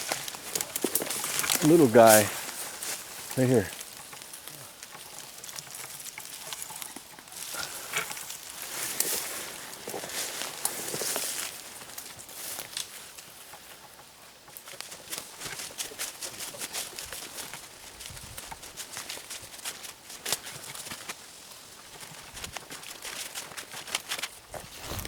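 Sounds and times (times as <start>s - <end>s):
footsteps crunching dry leaves: 0.0s - 5.9s, 7.4s - 12.7s, 23.3s - 25.0s.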